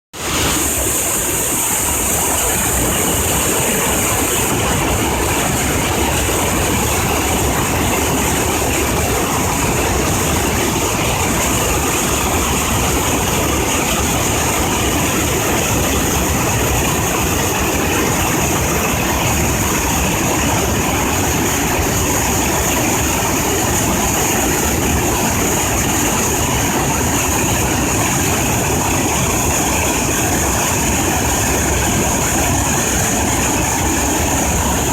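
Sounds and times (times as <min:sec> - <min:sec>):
waterfall rushing over rock: 0:00.2 - 0:34.9.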